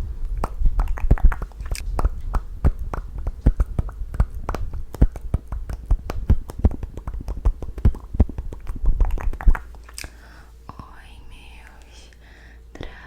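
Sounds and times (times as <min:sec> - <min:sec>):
wet tongue and lip clicks: 0:00.3 - 0:10.2.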